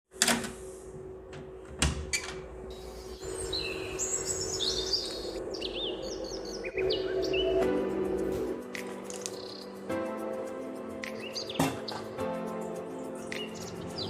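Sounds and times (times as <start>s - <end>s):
birds chirping: 2.7s - 8.6s, 9.2s - 9.8s, 11.0s - 12.2s, 13.0s - 14.0s.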